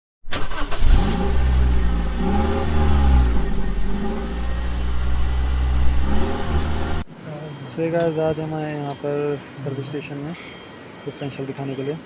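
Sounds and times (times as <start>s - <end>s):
pickup engine revving: 0.3s - 7.1s.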